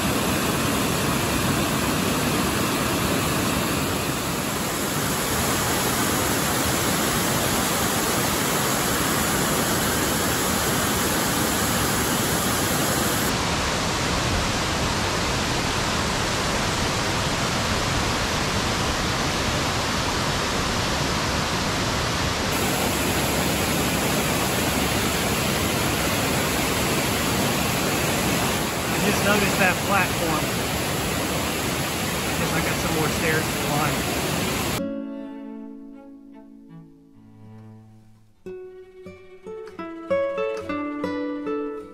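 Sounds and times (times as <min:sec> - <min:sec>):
waterfall rushing: 0:00.0 - 0:34.8.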